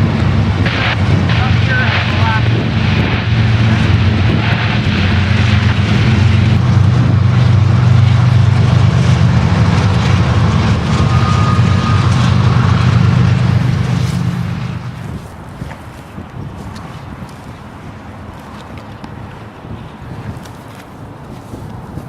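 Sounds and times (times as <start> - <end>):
diesel locomotives running: 0.0 - 22.0
high squeal: 9.3 - 14.9.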